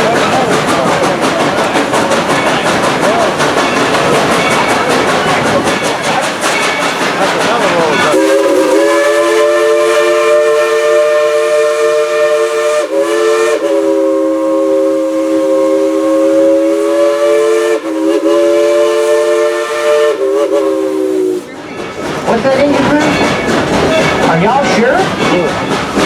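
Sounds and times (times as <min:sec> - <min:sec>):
steam locomotive whistle: 0:08.0 - 0:21.6.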